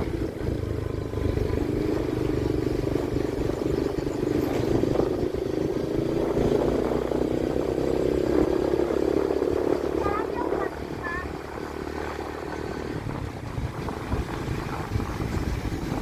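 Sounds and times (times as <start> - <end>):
train rumbling: 9.5 - 16.0.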